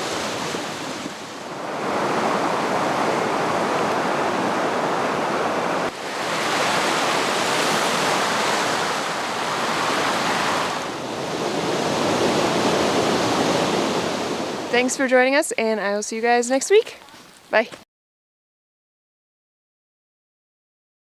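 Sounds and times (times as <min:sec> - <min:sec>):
stream rushing over small waterfalls: 0:00.0 - 0:11.1.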